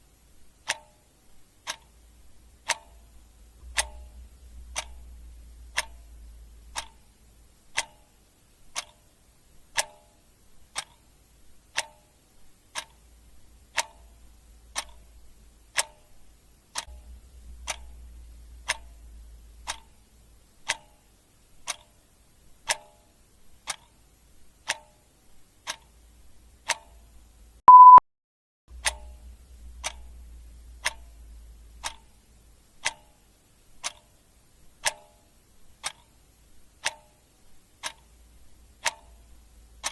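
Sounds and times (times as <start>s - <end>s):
clock ticking: 0.5s - 28.0s, 28.7s - 39.9s
short high beep: 27.7s - 28.0s.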